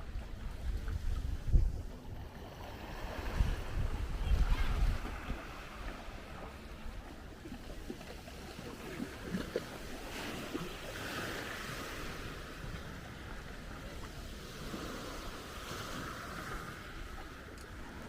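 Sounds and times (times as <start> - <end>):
low wind rumble on microphone: 0.0 - 7.1
surf washing onto shore: 0.0 - 18.0.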